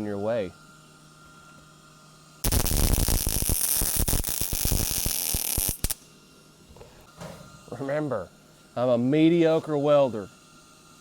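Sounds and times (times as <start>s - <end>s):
welder crackling hiss: 2.4s - 6.0s.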